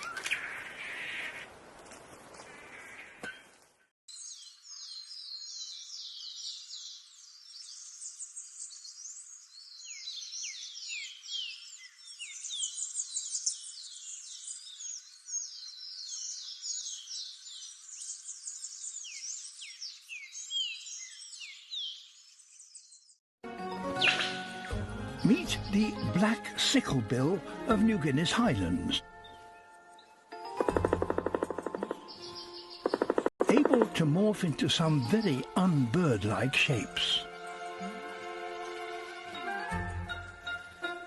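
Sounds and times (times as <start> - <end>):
chorus of small birds chirping: 4.1 - 23.2.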